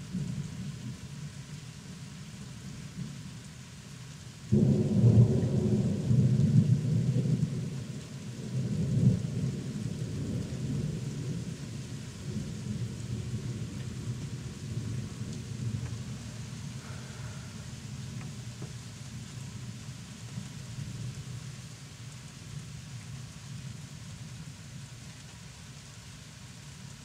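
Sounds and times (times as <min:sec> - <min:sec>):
thunder rumbling: 0:04.5 - 0:18.6.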